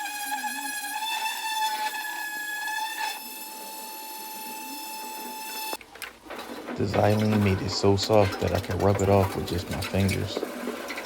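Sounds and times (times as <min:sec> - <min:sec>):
electric sander high whine: 0:00.0 - 0:05.8.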